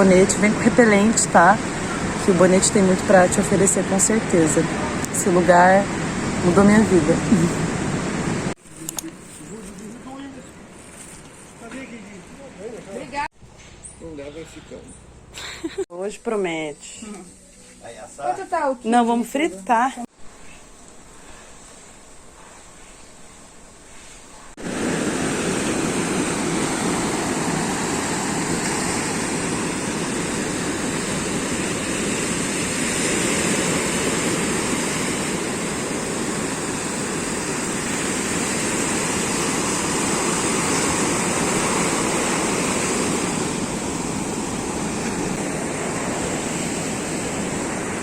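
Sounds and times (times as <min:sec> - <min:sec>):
rushing water roar: 0:00.0 - 0:08.6, 0:24.5 - 0:48.0.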